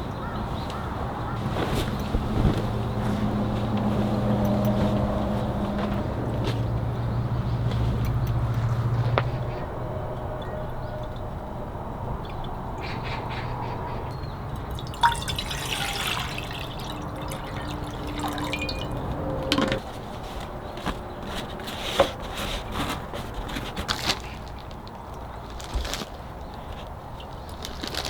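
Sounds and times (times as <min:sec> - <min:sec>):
water dripping and trickling: 0:10.2 - 0:13.0, 0:14.1 - 0:19.8.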